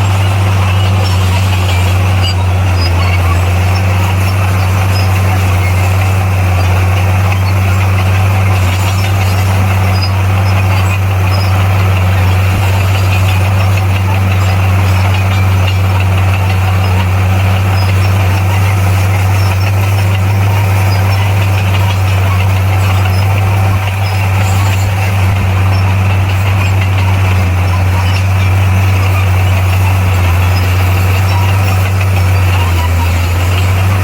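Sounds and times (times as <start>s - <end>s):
diesel engine droning: 0.0s - 34.0s.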